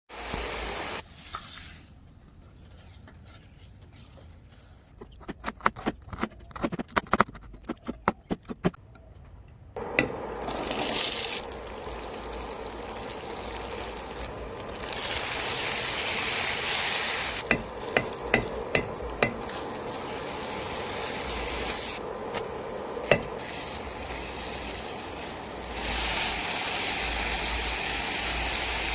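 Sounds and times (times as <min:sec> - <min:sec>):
prawns sizzling in a pan: 0:00.1 - 0:01.8, 0:10.0 - 0:28.9
utensil tapping pan: 0:17.4 - 0:19.6, 0:23.0 - 0:23.4.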